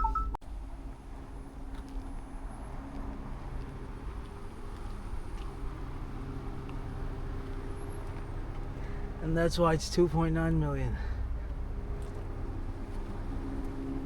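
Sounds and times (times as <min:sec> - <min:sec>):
vehicle engine idling: 0:00.5 - 0:14.0.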